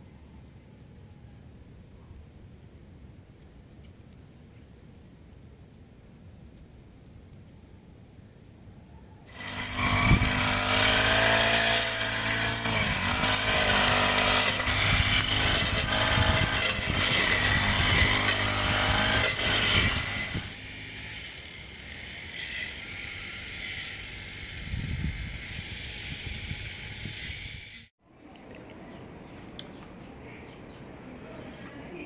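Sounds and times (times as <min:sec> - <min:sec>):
small engine running: 0:09.3 - 0:27.9.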